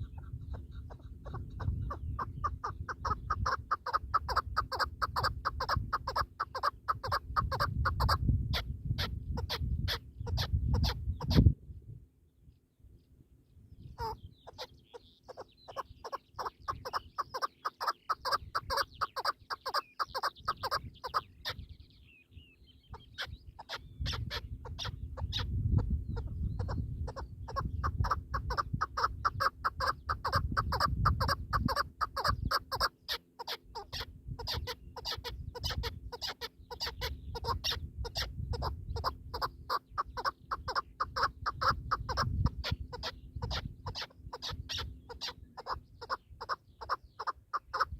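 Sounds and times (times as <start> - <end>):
partridge clucking call: 0.0 - 8.2, 15.3 - 21.6, 26.2 - 47.9.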